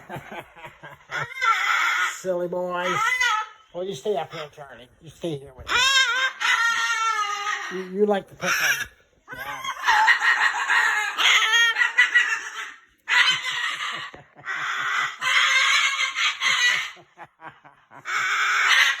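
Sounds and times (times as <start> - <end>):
cockatoo screeching: 1.1 - 17.1, 18.0 - 19.0.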